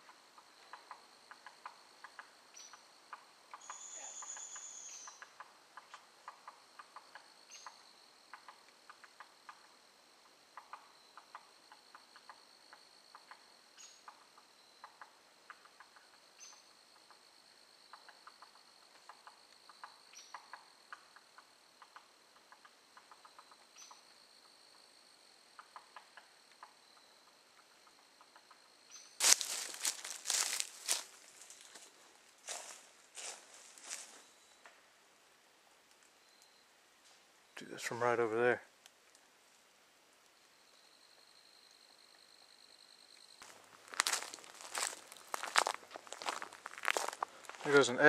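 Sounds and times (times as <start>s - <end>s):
high insect trill: 0.0s - 34.6s, 40.3s - 48.0s
footsteps crunching on leaves: 29.2s - 34.4s, 43.4s - 48.0s.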